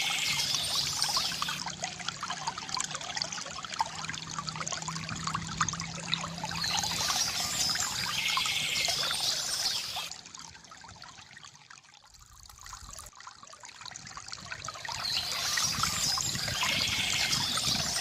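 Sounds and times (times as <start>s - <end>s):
water trickling from fountain: 0.0s - 18.0s.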